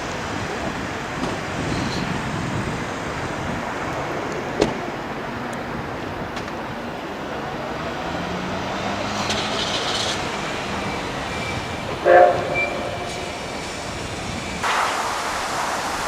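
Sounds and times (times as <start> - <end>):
steam hissing: 0.0 - 4.9, 8.2 - 16.0
train running noise: 0.0 - 16.0
steam locomotive whistle blast: 11.3 - 13.2.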